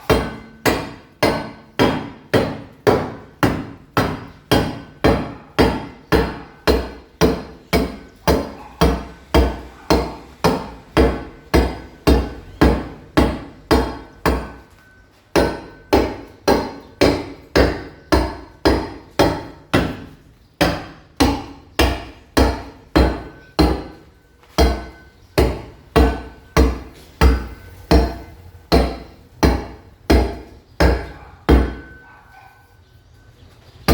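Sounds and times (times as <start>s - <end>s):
hammer striking masonry wall: 0.0s - 32.1s.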